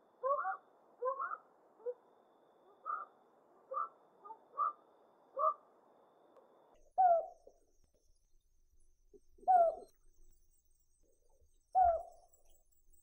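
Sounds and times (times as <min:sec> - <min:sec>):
owl hooting: 0:00.2 - 0:05.6, 0:07.0 - 0:07.4, 0:09.4 - 0:09.9.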